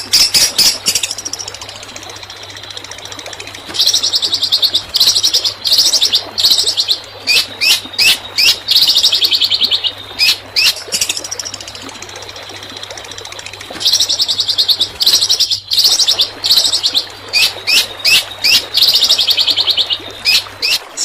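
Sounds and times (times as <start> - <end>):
faint steady hum: 0.0 - 21.0
songbird rattling trills: 0.0 - 21.0.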